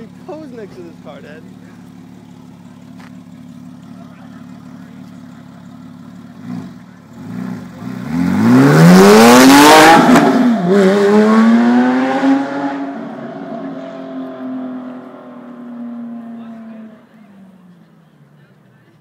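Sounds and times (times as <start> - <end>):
sports car accelerating past: 3.4 - 17.1.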